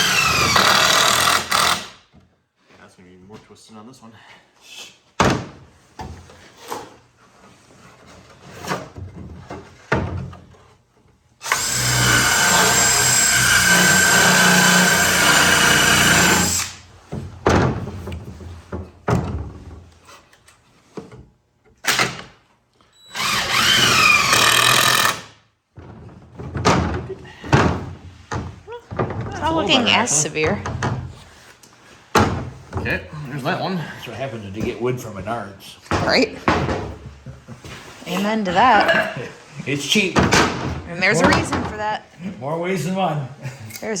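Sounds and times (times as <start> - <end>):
power drill driving screws: 0.0 - 2.0, 11.4 - 16.8, 23.0 - 25.4.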